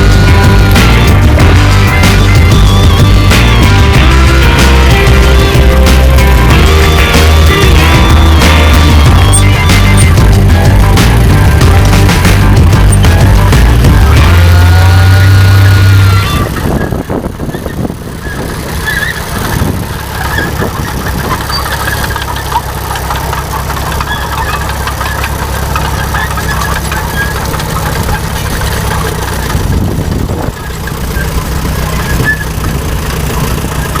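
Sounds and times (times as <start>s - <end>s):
tractor engine humming: 0.0s - 34.0s.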